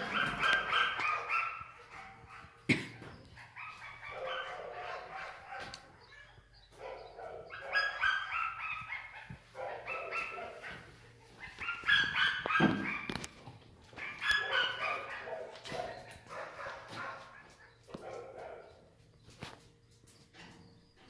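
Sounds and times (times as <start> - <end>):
dog whining and yipping: 7.6 - 9.1, 11.4 - 13.3.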